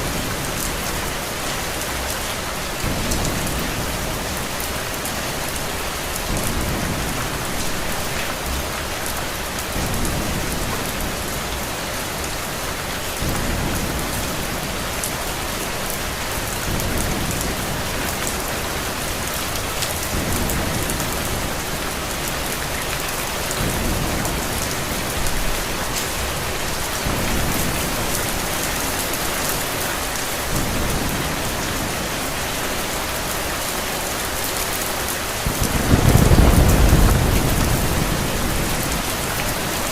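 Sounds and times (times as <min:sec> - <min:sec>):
steady rain: 0:00.0 - 0:39.9
thunder rumbling: 0:35.4 - 0:39.9.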